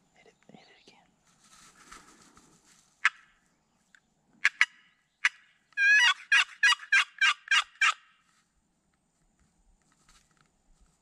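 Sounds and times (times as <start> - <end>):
turkey gobbling: 4.4 - 8.0.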